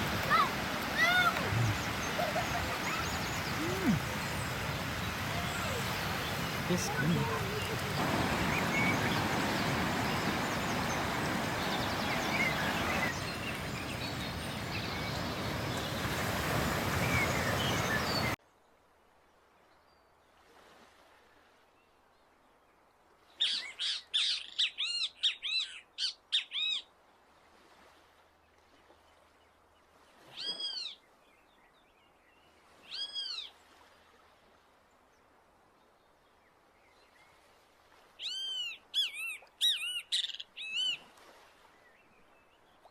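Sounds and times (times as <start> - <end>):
rushing surf: 0.0 - 18.4.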